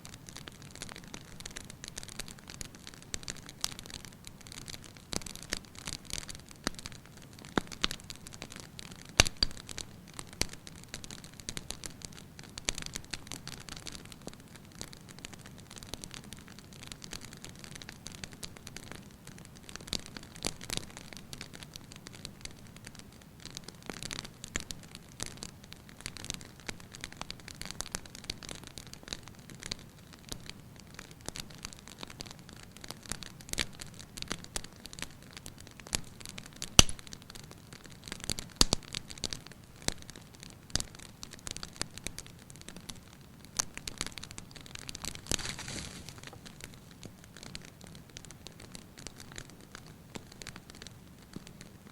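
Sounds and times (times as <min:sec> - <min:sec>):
wood fire crackling: 0:00.0 - 0:51.9
sharp loud pop of fire: 0:36.8 - 0:37.0.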